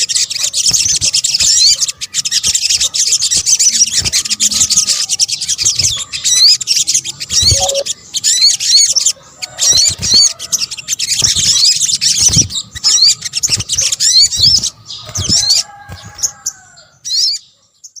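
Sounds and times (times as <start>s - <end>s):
bird chirping and twittering: 0.0s - 18.0s.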